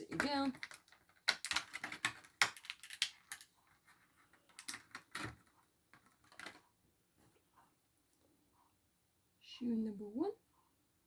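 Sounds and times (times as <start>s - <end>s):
small plastic parts clicking: 0.1s - 3.5s, 4.3s - 6.6s.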